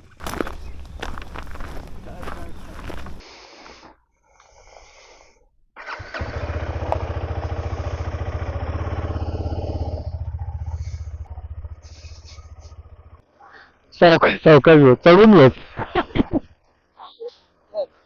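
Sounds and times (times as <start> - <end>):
motorcycle engine starting and running: 0.0 - 3.2, 5.8 - 13.3.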